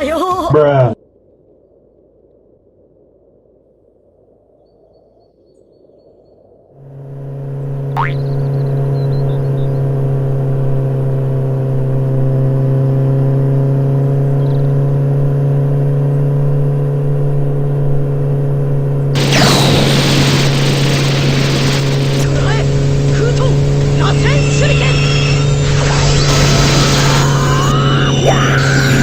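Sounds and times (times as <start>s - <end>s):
motorcycle engine running: 6.8s - 27.7s.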